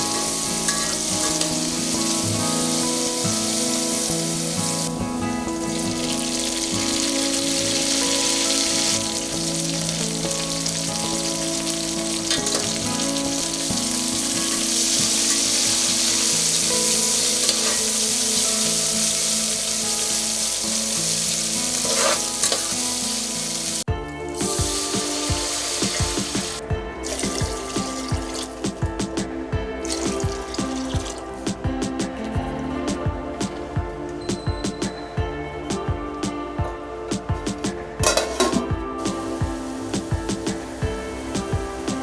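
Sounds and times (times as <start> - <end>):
food sizzling in hot oil: 0.0 - 4.9, 5.6 - 28.5.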